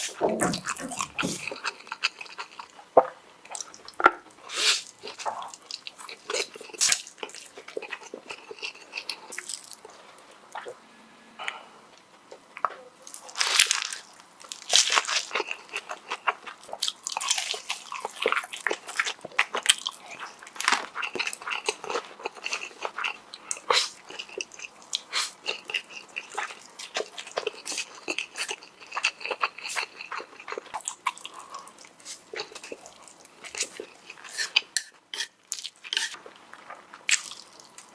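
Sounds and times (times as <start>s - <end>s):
crunchy chewing: 0.0s - 2.9s, 3.5s - 10.8s, 11.4s - 37.9s.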